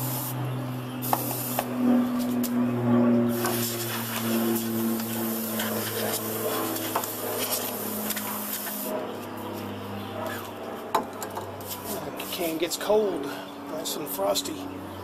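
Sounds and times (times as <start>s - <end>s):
compressed air spraying hiss: 0.0s - 0.4s, 1.0s - 1.7s, 3.3s - 8.9s
steady low hum: 0.0s - 15.0s.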